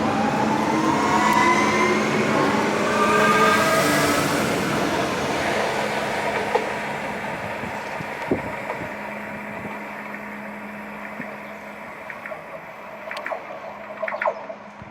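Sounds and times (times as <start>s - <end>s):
electric train pulling away: 0.0s - 14.9s
low hum: 7.8s - 14.9s.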